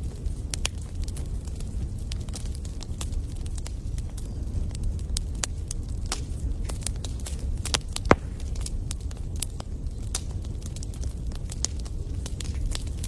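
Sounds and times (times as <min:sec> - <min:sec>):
wood fire crackling and popping: 0:08.0 - 0:08.7.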